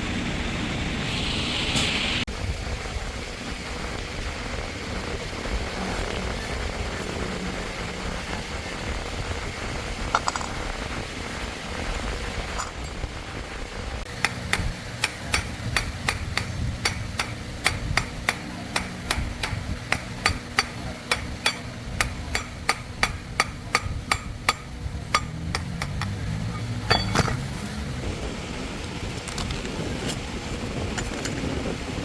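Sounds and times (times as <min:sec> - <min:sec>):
low steady rumble: 0:02.3 - 0:32.0
hammer tapping: 0:14.1 - 0:27.5.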